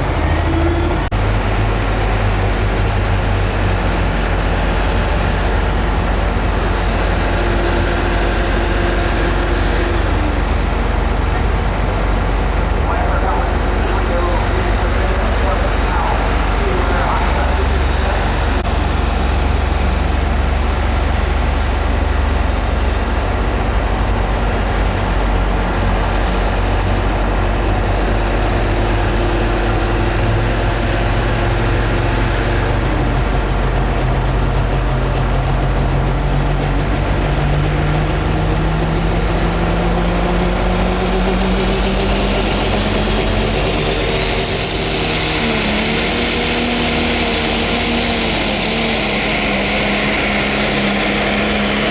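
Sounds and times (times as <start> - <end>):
diesel tractor engine running: 0.0 - 51.9
high turbo whistle: 42.5 - 51.9.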